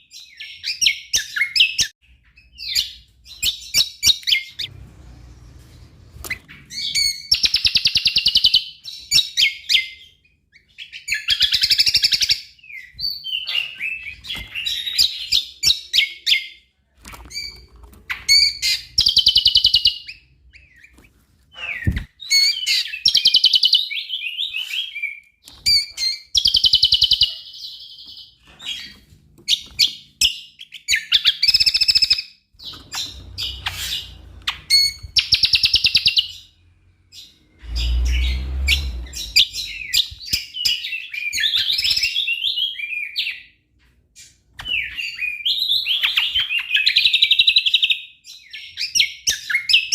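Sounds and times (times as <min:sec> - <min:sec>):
bird singing trills and chirps: 0:00.0 - 0:43.6, 0:44.2 - 0:49.9.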